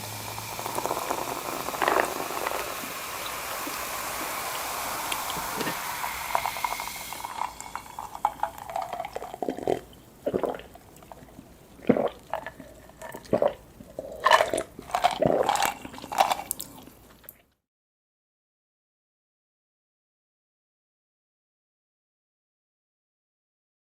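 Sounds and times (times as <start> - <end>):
steady hiss: 0.0 - 9.2.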